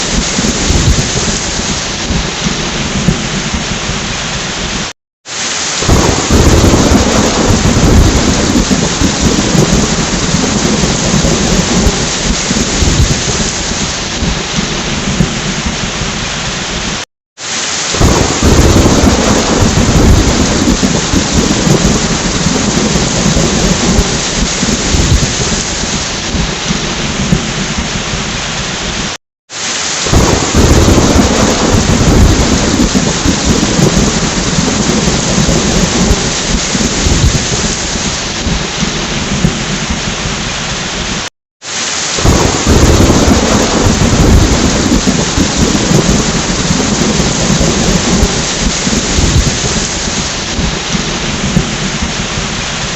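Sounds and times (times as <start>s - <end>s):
rumbling thunder: 0.0s - 4.8s, 5.8s - 16.3s, 18.0s - 28.4s, 30.0s - 40.6s, 42.2s - 52.9s
heavy rain: 0.0s - 52.9s.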